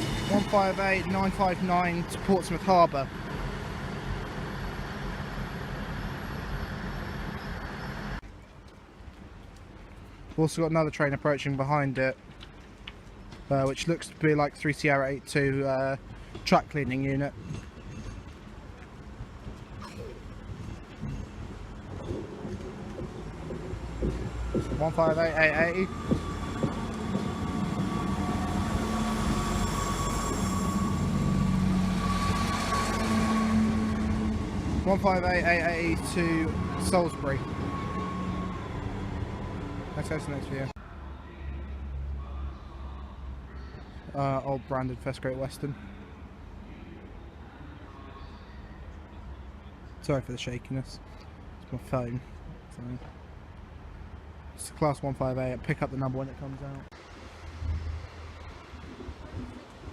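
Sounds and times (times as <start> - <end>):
diesel train engine rumble: 0.0 - 41.2.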